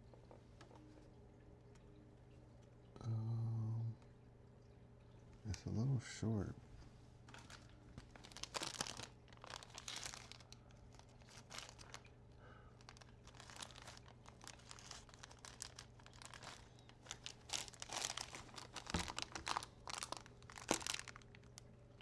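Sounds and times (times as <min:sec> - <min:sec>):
plastic bags crinkling: 0:07.3 - 0:22.0.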